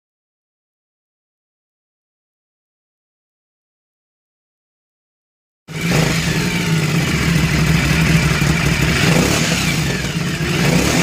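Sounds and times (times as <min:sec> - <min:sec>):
motorcycle engine idling: 0:05.7 - 0:11.0.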